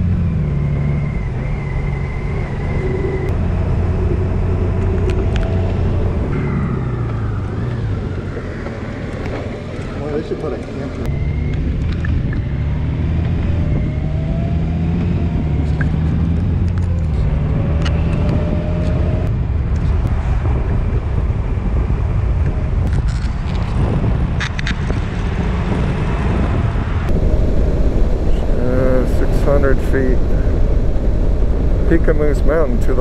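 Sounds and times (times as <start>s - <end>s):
road noise: 0.0s - 33.0s
vehicle engine running: 25.3s - 33.0s.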